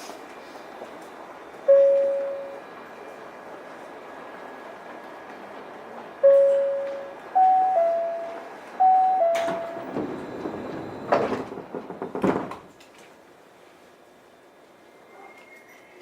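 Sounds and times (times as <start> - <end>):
train door chime: 1.6 - 2.8, 6.2 - 11.4
sliding doors closing with clunks: 4.6 - 13.2.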